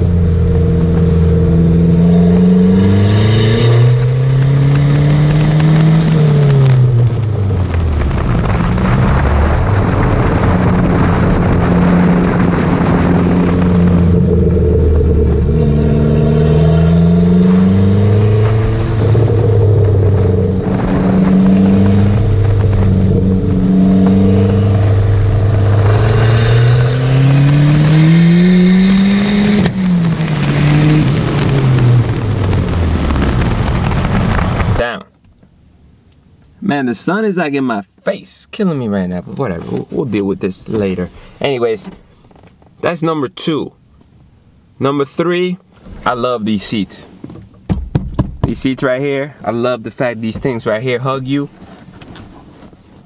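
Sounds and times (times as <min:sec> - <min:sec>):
car engine revving hard: 0:00.0 - 0:33.5
wind and road noise: 0:00.0 - 0:37.7, 0:38.5 - 0:53.0.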